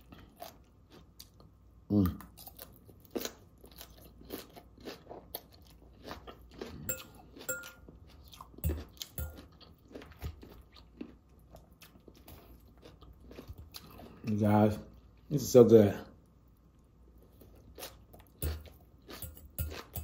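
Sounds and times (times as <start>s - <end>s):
crunching and chewing lettuce: 0.0s - 15.0s, 16.6s - 20.0s.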